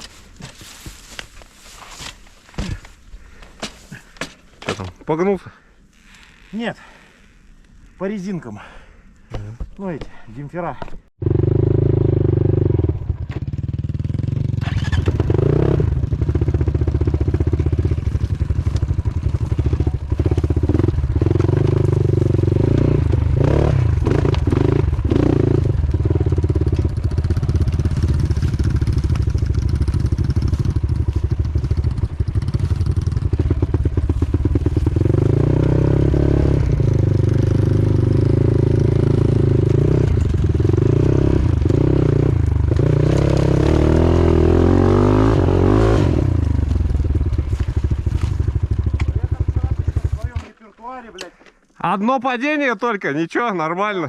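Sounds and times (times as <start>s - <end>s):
motorcycle engine revving: 11.2s - 50.4s.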